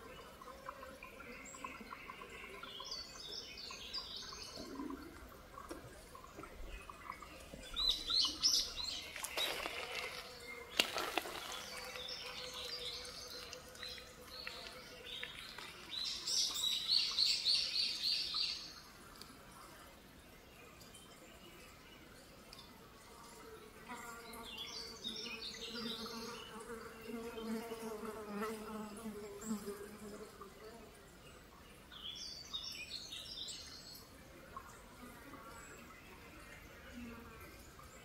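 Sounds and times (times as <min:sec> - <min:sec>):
small birds chirping: 0:05.9 - 0:19.7.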